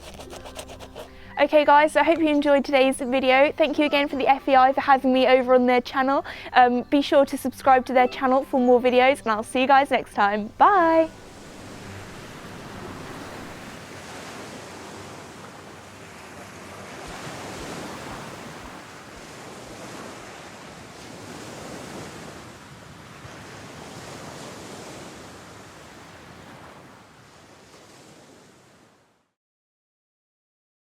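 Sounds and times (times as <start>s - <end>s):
sea surf washing onto beach: 10.8s - 29.0s
wind on microphone: 11.1s - 27.0s.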